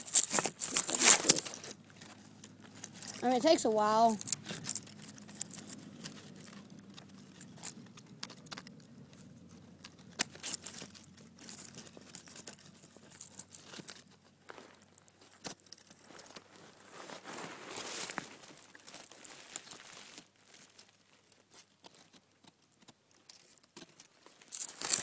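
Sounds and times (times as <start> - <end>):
rustling and crackling leaves: 0.0 - 25.0.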